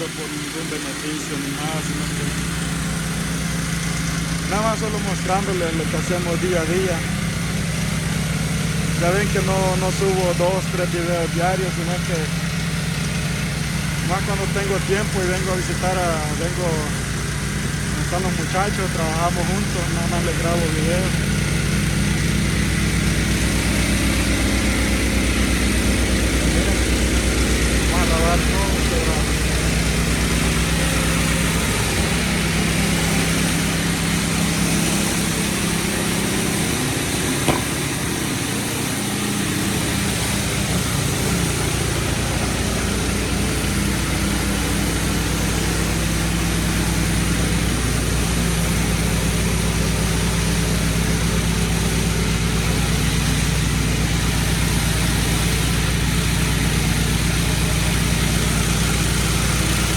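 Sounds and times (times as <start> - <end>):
pressure washer engine running: 0.0 - 59.9
high-pressure spray hiss: 18.4 - 59.9.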